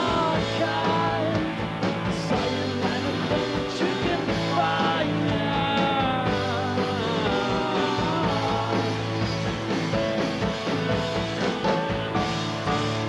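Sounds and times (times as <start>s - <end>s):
bass line: 0.0s - 13.0s
guitar: 0.0s - 13.0s
rock band instrumental: 0.0s - 13.0s.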